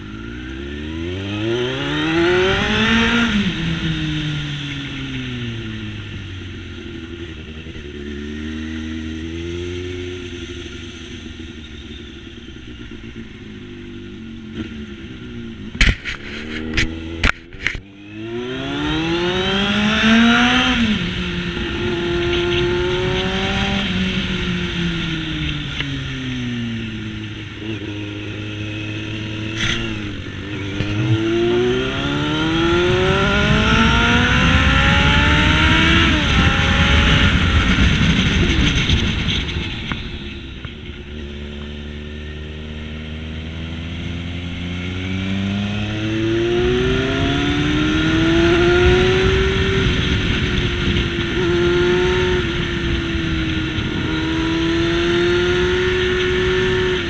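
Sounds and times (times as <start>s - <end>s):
motorcycle engine under way: 0.0s - 57.0s
wind rush over microphone: 29.4s - 40.8s, 46.5s - 57.0s.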